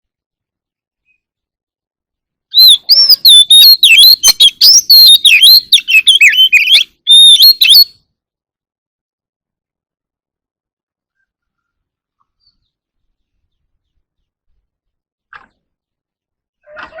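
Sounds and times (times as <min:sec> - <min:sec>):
bird singing whistled notes: 0:02.5 - 0:08.1.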